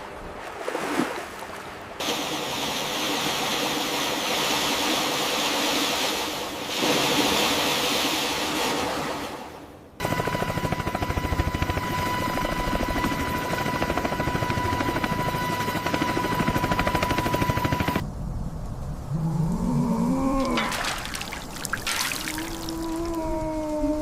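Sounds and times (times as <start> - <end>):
helicopter rotor chopping: 10.0 - 18.0
low rumble with wavering tone: 18.1 - 20.6.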